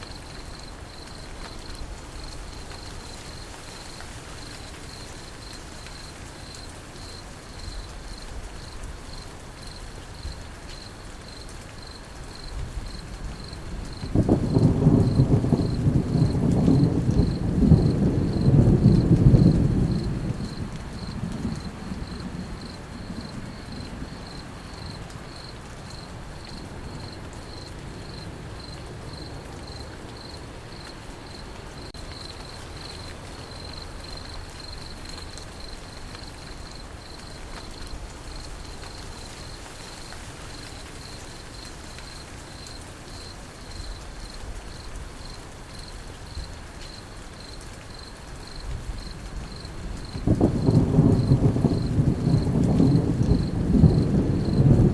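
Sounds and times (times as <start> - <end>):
crickets chirping: 0.0 - 54.9
light rain: 0.0 - 54.9
thunder rumbling: 12.6 - 25.5, 48.6 - 54.9.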